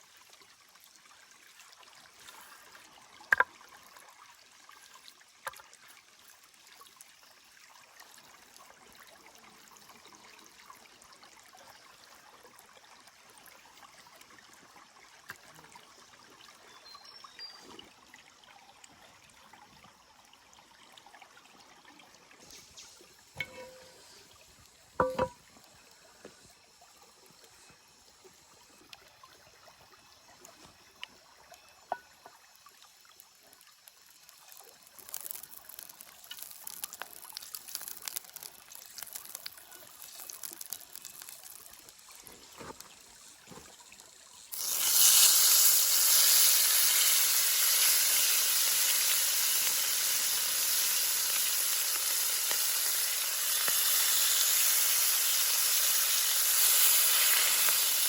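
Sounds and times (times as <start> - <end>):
meat sizzling in hot fat: 22.7 - 24.2, 33.2 - 58.0
light crackling: 34.2 - 42.9.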